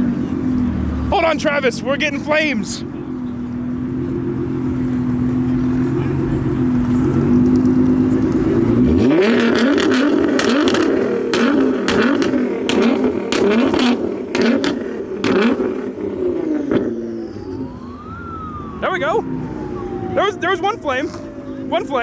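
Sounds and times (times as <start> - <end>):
car engine revving: 0.0 - 19.8
exhaust pops and crackles: 4.7 - 17.0.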